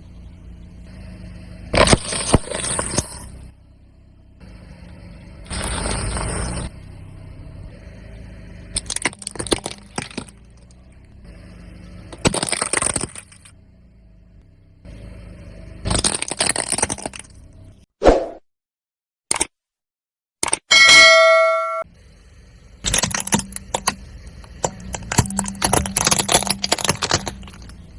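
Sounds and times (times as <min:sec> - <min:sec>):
car engine running low: 0:00.0 - 0:17.9, 0:21.8 - 0:27.9
tyre crushing brittle objects: 0:01.8 - 0:03.3, 0:08.8 - 0:10.8, 0:12.1 - 0:13.5, 0:15.9 - 0:17.4, 0:22.9 - 0:27.9
brief loud tone: 0:20.7 - 0:21.9.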